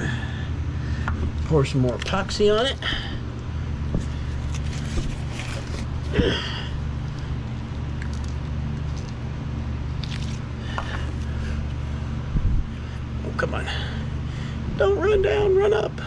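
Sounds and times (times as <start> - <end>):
low motor hum: 0.0 - 16.0
soft squishy handling noises: 0.9 - 9.3, 9.9 - 12.0.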